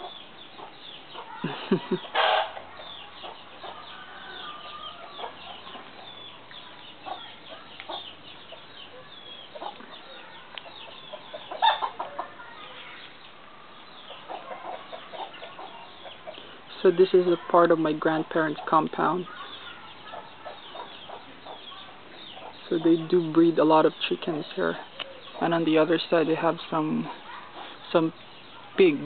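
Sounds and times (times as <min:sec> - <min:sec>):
chickens clucking: 0:00.0 - 0:29.0
loud chicken call: 0:01.3 - 0:02.6.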